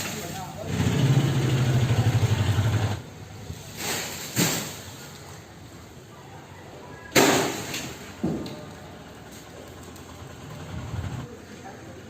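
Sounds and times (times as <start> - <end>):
low engine idling: 8.4 - 12.0.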